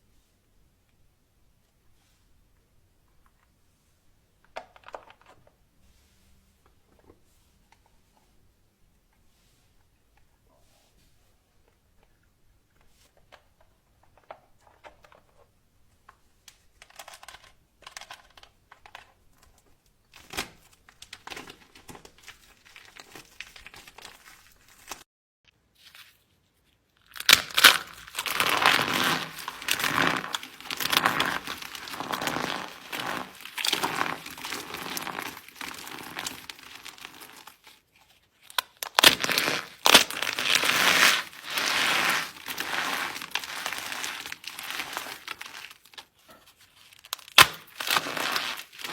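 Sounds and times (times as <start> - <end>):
soap crushing and crackling: 16.5 - 25.0, 26.7 - 48.9.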